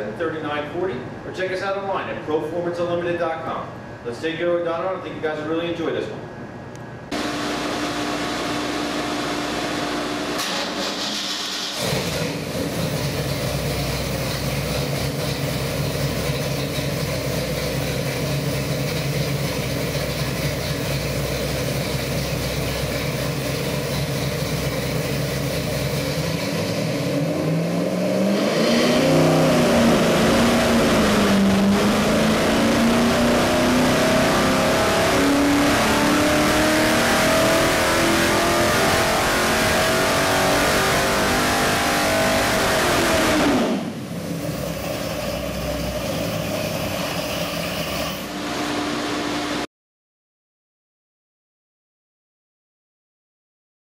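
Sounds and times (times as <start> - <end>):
engine revving on a dyno: 7.1 - 49.7.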